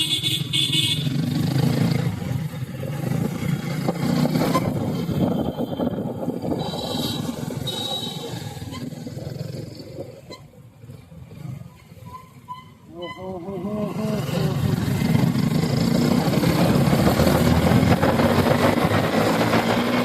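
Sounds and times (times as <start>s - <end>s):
motorcycle engine running: 0.0s - 10.2s, 13.3s - 20.0s.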